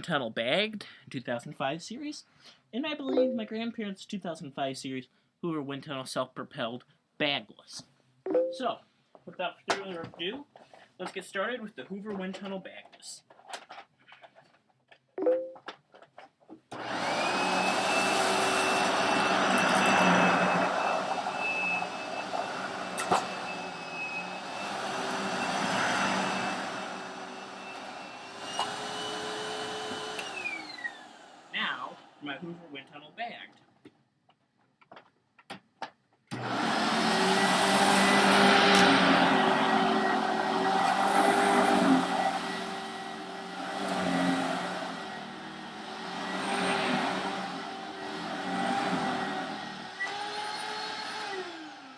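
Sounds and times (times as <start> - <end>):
vacuum cleaner motor whine: 16.7 - 32.2, 36.3 - 51.9.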